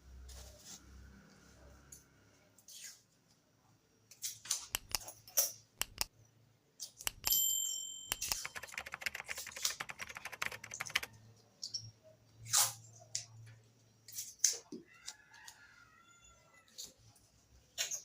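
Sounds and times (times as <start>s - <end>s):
small metal parts clicking: 4.8s - 6.1s, 7.0s - 7.4s, 8.1s - 11.1s.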